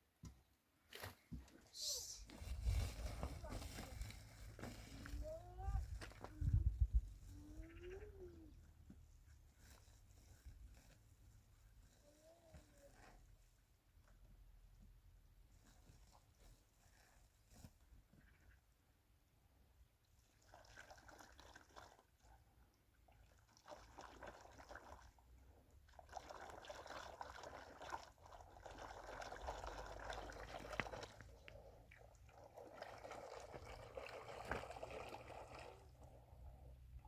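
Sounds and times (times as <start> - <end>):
water pouring and trickling: 20.2 - 22.4, 23.0 - 36.4.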